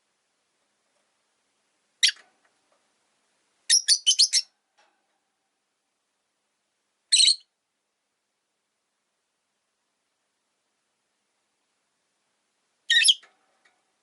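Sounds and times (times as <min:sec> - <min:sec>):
lovebird shrill chirps: 0:02.0 - 0:02.2, 0:03.7 - 0:04.5, 0:07.1 - 0:07.5, 0:12.9 - 0:13.2.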